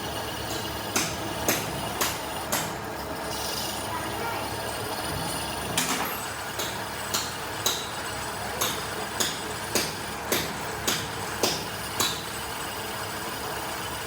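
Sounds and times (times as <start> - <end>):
hammer striking metal: 5.8 - 7.9, 8.6 - 12.2.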